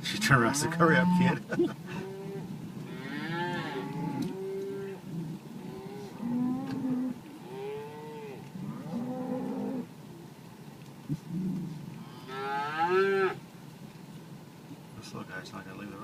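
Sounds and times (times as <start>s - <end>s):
cattle mooing: 0.2s - 5.0s, 5.6s - 9.9s, 11.5s - 13.4s.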